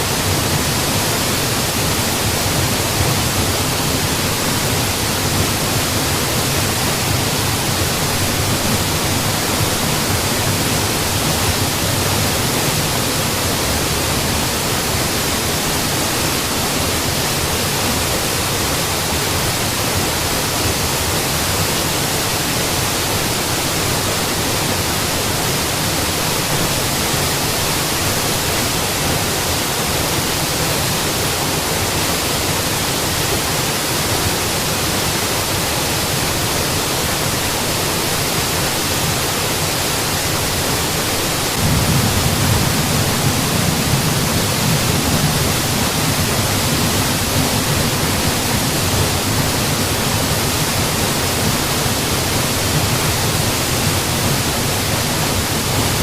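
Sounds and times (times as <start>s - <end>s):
waterfall rushing: 0.0s - 56.0s
deep rumble of water: 40.8s - 56.0s.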